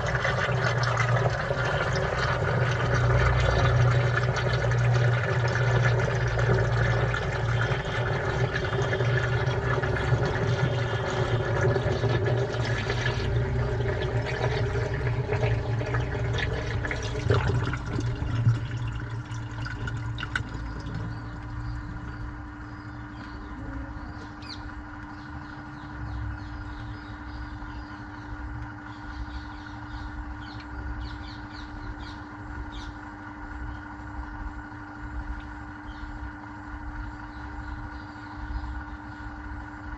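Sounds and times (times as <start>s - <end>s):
water rushing and sloshing: 0.0s - 22.2s
washing machine hum: 0.0s - 39.9s.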